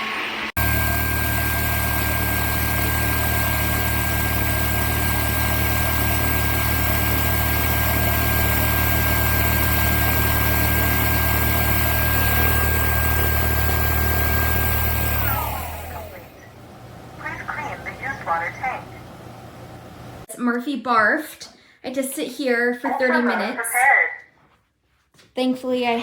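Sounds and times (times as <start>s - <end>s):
vacuum mop humming and whining: 0.0s - 20.3s.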